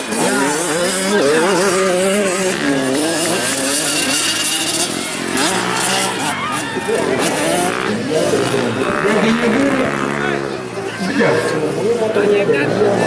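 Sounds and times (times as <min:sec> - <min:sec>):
motocross bikes revving: 0:00.0 - 0:13.0.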